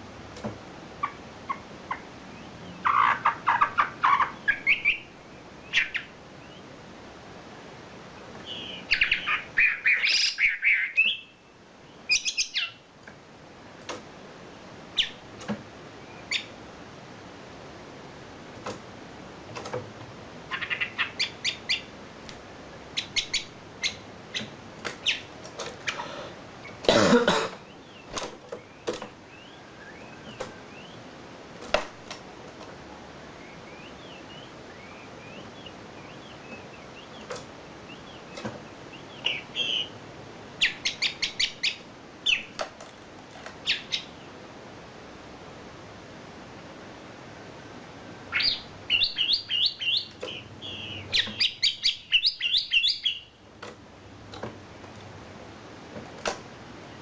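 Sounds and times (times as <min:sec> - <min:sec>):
songbird chirping: 0:00.3 - 0:07.0, 0:07.6 - 0:13.2, 0:14.4 - 0:16.6, 0:20.4 - 0:26.9, 0:27.5 - 0:44.6, 0:48.0 - 0:55.1.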